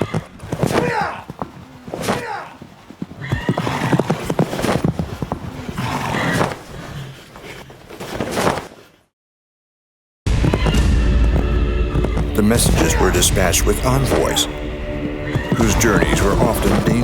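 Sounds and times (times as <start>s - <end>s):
clattering hoofbeats: 0.0s - 6.7s, 10.3s - 17.0s
horses neighing: 0.0s - 8.1s, 10.4s - 17.0s.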